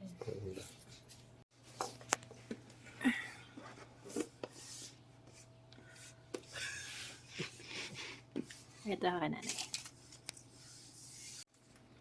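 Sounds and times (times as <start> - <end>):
scratchy rubs: 10.5 - 11.5.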